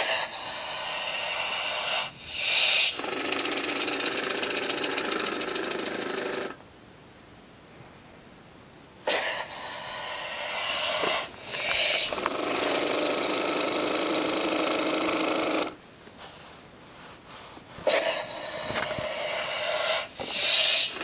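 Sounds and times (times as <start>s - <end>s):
toy motor buzzing clatter: 1.1s - 6.6s, 10.3s - 15.8s, 17.9s - 21.0s.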